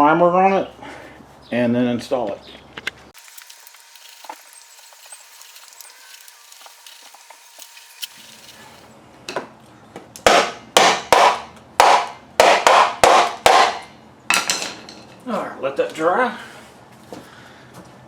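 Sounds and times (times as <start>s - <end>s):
paintbrush rubbing on wood: 3.2s - 8.9s.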